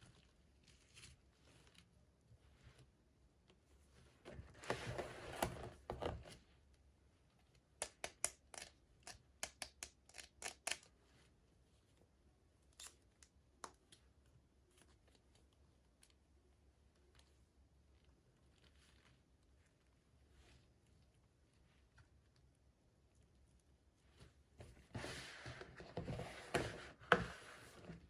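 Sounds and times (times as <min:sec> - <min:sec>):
scissors snipping plastic: 0:07.8 - 0:10.9.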